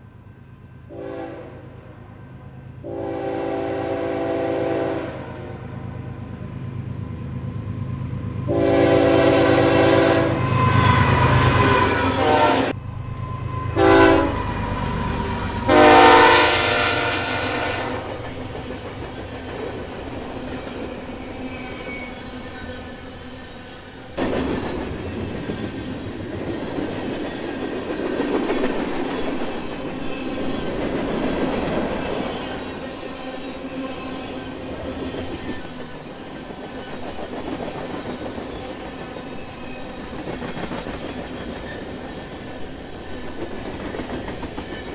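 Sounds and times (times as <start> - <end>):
freight train rolling on rails: 0.0 - 44.9
locomotive air horn blasts: 0.9 - 1.7, 2.8 - 5.5, 8.5 - 18.2.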